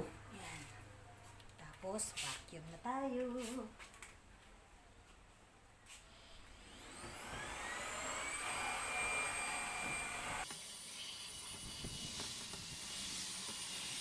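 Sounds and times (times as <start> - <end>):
vacuum cleaner motor whining: 6.4 - 14.0.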